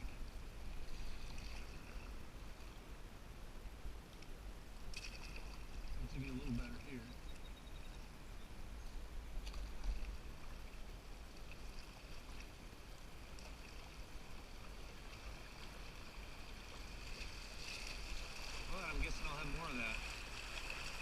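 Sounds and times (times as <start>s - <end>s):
river water running: 0.0s - 21.0s.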